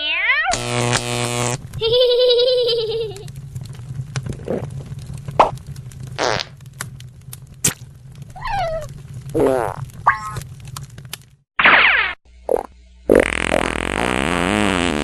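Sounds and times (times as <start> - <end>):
low buzz: 0.5 - 8.3, 12.3 - 15.0.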